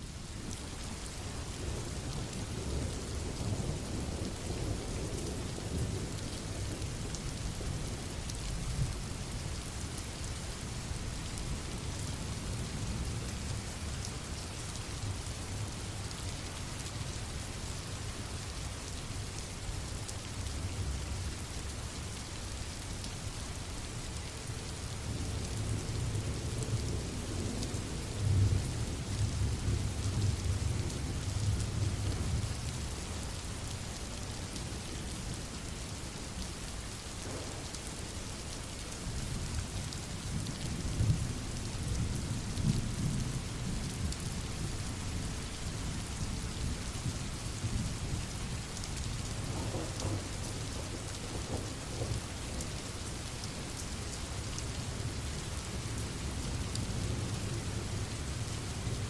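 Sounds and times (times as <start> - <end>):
steady rain falling: 0.0 - 59.0
low rumbling thunder: 37.2 - 38.0, 49.4 - 52.7.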